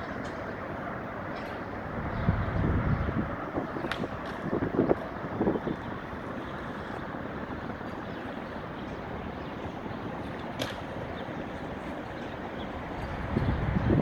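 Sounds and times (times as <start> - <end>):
distant traffic: 0.0 - 14.0
wind: 0.0 - 14.0
rushing water: 3.2 - 14.0.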